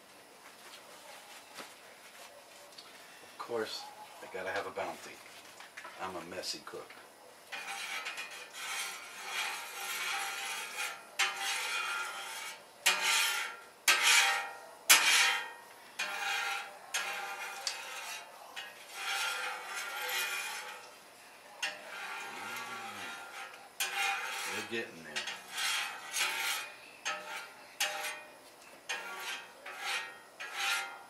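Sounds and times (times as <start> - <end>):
scraping against metal grill: 7.5 - 31.0.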